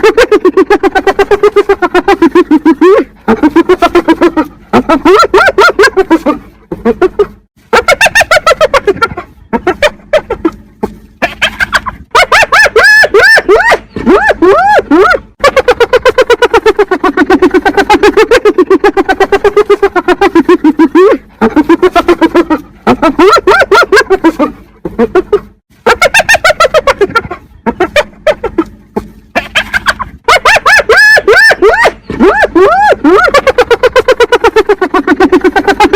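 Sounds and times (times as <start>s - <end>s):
hyenas giggling: 0.0s - 35.9s.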